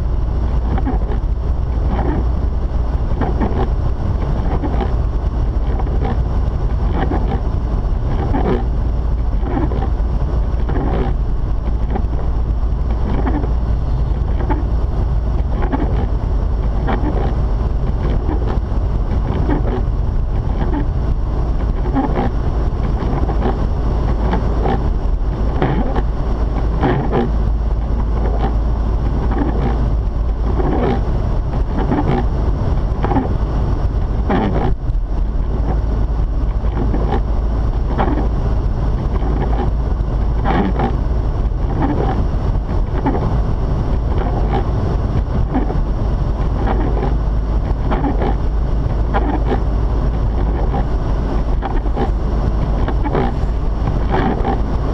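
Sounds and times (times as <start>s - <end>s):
car engine and road rumble: 0.0s - 54.9s
short crackles: 36.4s - 54.7s.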